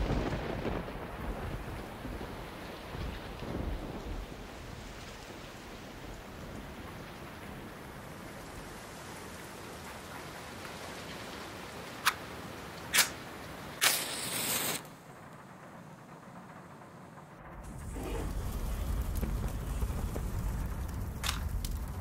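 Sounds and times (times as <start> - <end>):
steady hiss: 2.8 - 22.0
match striking: 12.8 - 13.2, 13.8 - 14.9
match flaring hiss: 12.8 - 15.0.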